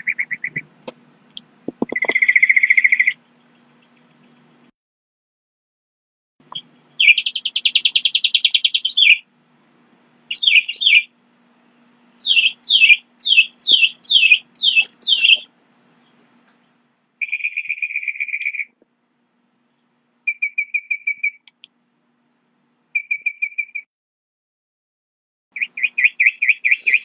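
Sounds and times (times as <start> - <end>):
songbird calling: 0.0 - 0.7, 1.8 - 4.5, 6.5 - 9.3, 10.3 - 11.1, 12.2 - 18.8, 20.3 - 21.6, 23.0 - 23.9, 25.6 - 27.0.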